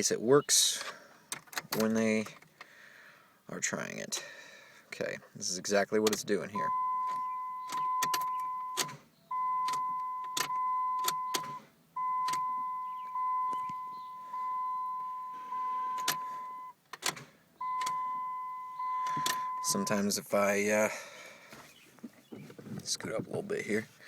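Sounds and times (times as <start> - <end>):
ignition key clicks: 6.0 - 15.3, 15.9 - 19.9
electronic warning beep: 6.6 - 16.8, 17.6 - 20.1.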